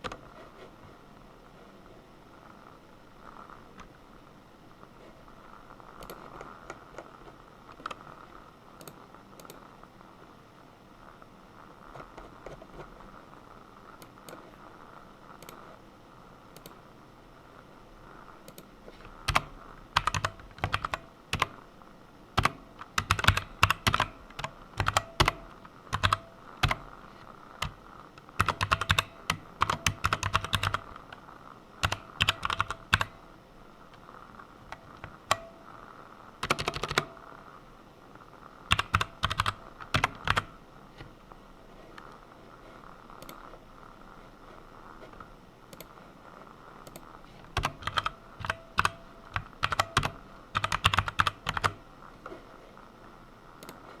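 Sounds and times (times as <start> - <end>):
typing on computer keyboard: 18.5 - 21.6, 22.4 - 26.9, 28.4 - 31.0, 31.8 - 33.2, 36.4 - 37.2, 38.7 - 40.5, 46.8 - 51.8.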